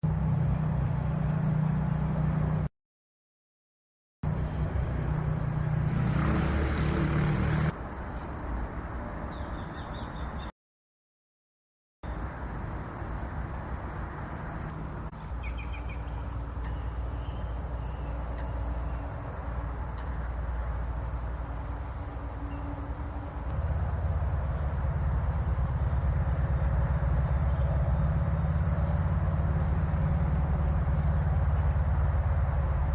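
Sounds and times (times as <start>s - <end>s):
faint high bird chirps: 9.3s - 10.5s, 15.2s - 19.2s.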